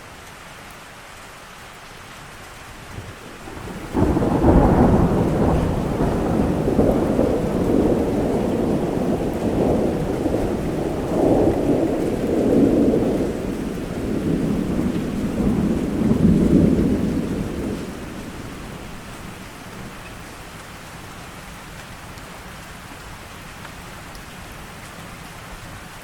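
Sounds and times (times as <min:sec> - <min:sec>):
steady rain: 0:00.0 - 0:26.0
thunder rumbling: 0:03.4 - 0:20.6.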